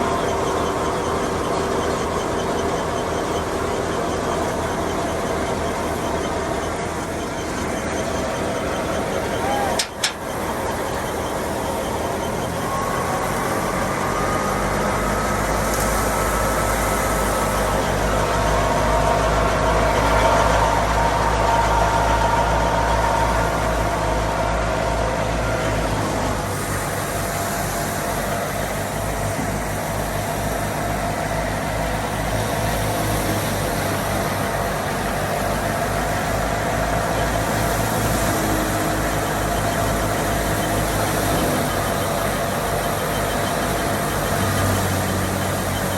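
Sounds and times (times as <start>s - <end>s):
machinery whine: 0.0s - 45.9s
tractor diesel engine running: 0.0s - 45.9s.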